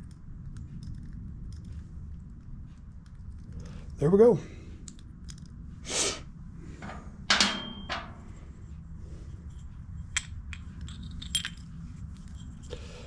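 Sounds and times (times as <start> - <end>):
metal parts clinking: 6.8 - 8.4, 10.1 - 12.7.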